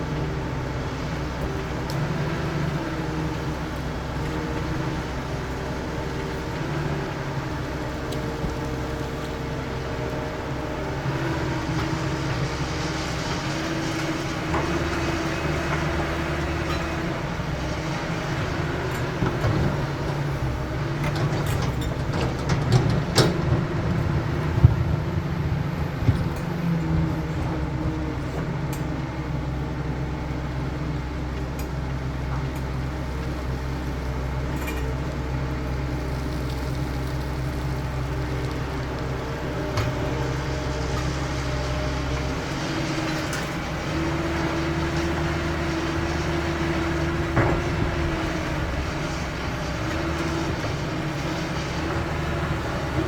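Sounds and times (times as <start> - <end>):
excavator diesel engine under load: 0.0 - 53.0
hydraulics whining: 37.8 - 53.0.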